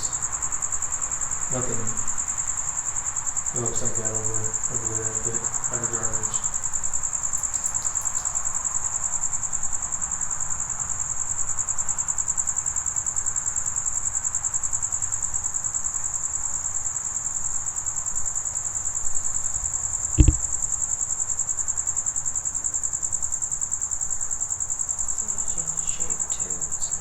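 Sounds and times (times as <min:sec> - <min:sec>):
crickets chirping: 0:00.0 - 0:27.0
low thump: 0:20.1 - 0:20.5.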